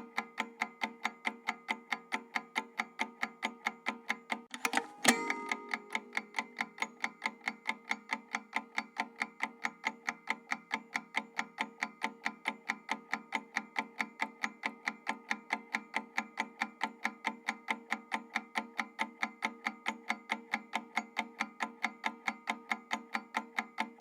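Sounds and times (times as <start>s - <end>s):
clock timer ticking: 4.5s - 10.9s
steady held tone: 4.6s - 6.6s.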